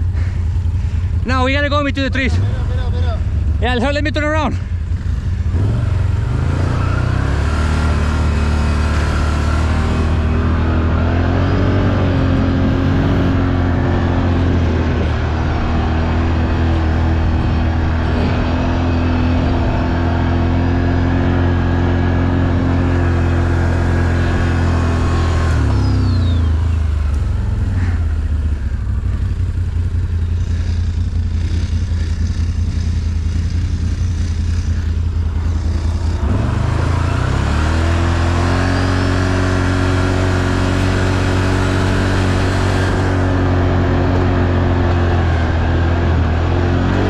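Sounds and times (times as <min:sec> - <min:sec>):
atv engine running: 0:00.0 - 0:47.0.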